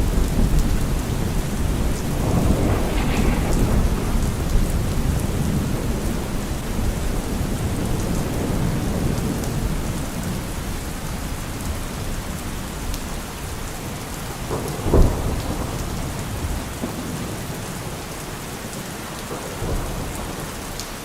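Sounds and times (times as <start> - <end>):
low rolling thunder: 0.0 - 10.7, 13.6 - 18.1
steady rainfall: 0.0 - 21.0.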